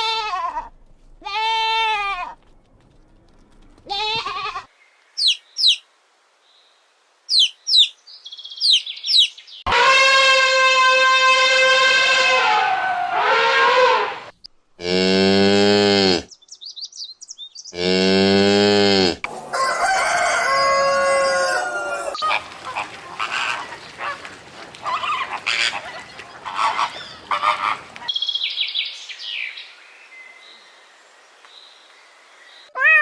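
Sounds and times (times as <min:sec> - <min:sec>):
rooster crowing: 0:19.4 - 0:22.2
hens clucking: 0:19.6 - 0:28.2.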